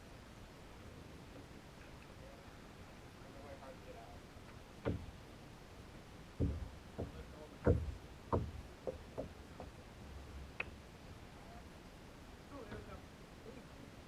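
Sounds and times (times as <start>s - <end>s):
kayak paddle bumping hull: 6.4s - 9.7s.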